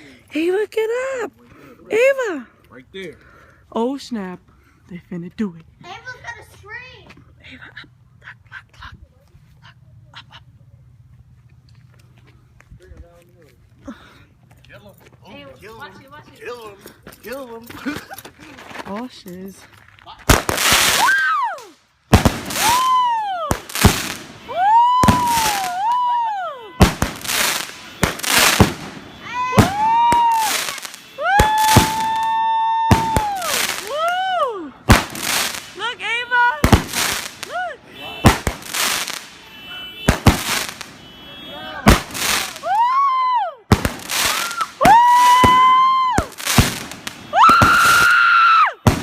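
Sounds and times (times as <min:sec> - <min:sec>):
fireworks bangs: 0:20.2 - 0:21.2, 0:22.1 - 0:34.2, 0:34.8 - 0:42.9, 0:43.7 - 0:49.0
firework crackling: 0:20.2 - 0:41.2, 0:41.8 - 0:43.1, 0:43.7 - 0:49.0
firework whistles: 0:20.4 - 0:21.6, 0:22.2 - 0:34.1, 0:41.9 - 0:43.1, 0:43.7 - 0:49.0.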